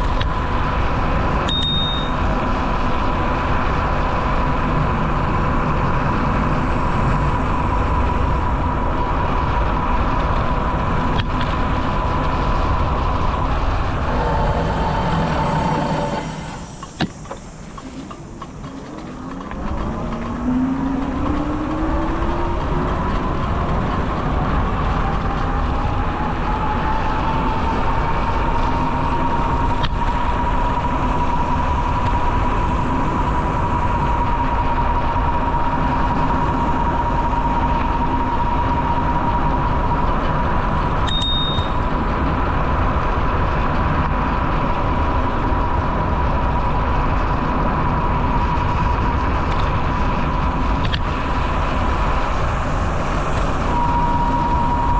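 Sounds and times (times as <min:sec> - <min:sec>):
rising whine: 0:00.0 - 0:54.9
rolling noise: 0:00.3 - 0:54.9
brief high click: 0:41.1 - 0:41.8.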